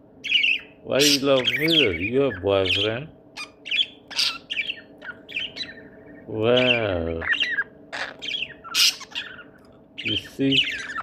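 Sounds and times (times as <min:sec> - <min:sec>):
parrot chirps and squawks: 0:00.2 - 0:02.0, 0:02.6 - 0:11.0.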